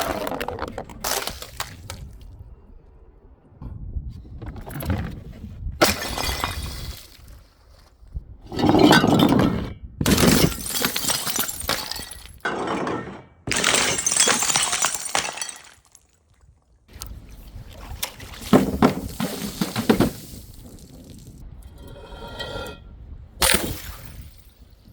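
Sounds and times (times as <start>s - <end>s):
glass bottles shattering: 5.8s - 7.2s, 10.1s - 16.2s
broken glass clinking: 10.4s - 16.0s.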